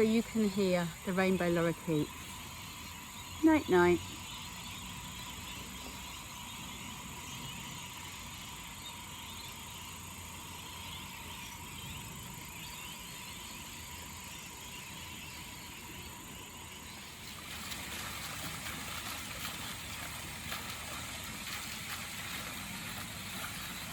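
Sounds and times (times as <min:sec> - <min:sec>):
lorikeets chattering and screeching: 0:00.0 - 0:17.2.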